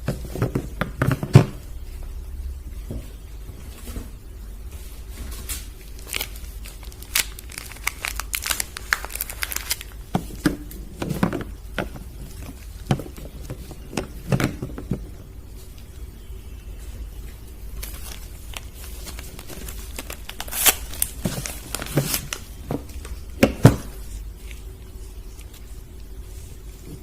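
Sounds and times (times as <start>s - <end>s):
wrappers crinkling and tearing: 5.3s - 10.1s, 17.8s - 23.2s.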